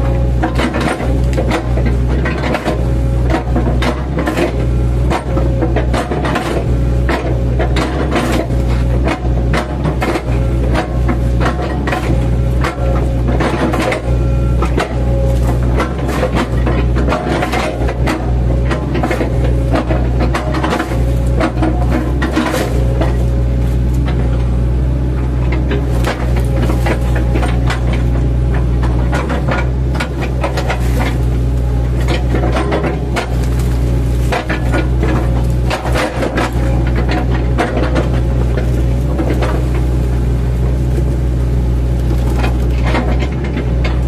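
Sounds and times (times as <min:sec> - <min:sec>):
diesel engine running under load: 0:00.0 - 0:44.0
bucket knocking and crunching wood: 0:25.6 - 0:40.2.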